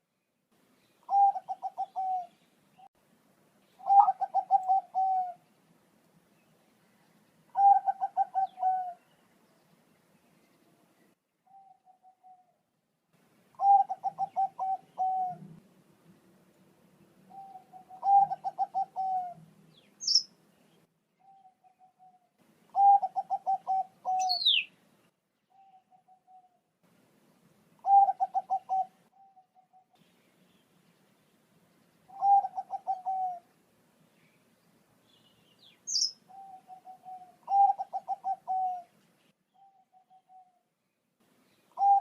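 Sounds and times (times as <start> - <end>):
dove cooing: 1.1 - 2.4, 3.8 - 5.4, 7.5 - 9.2, 11.5 - 12.6, 13.5 - 15.6, 17.3 - 19.5, 21.2 - 24.7, 25.5 - 26.6, 27.8 - 30.0, 32.1 - 33.5, 35.9 - 38.9, 39.6 - 40.6, 41.7 - 42.0
high bird chirps: 19.8 - 20.3, 22.7 - 24.7, 35.1 - 38.7.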